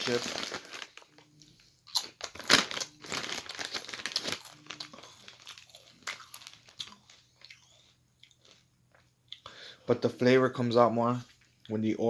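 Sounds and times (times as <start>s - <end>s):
chip bag crinkling: 0.0s - 1.2s, 1.9s - 7.5s.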